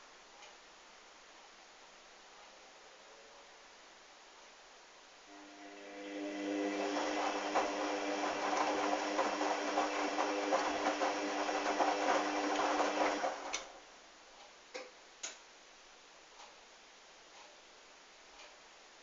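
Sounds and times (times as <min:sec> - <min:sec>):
washing machine drum tumbling: 0:06.1 - 0:13.7.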